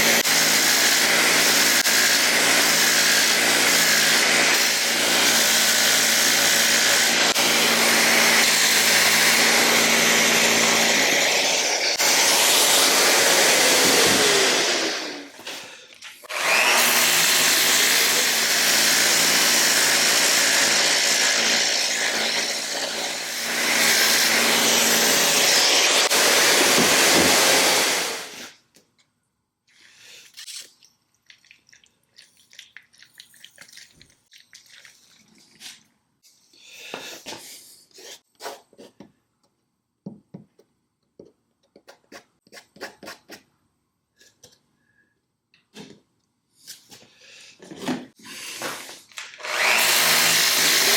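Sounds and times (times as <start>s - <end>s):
electric power tool running: 0.0s - 15.3s, 16.3s - 28.5s, 48.5s - 50.9s.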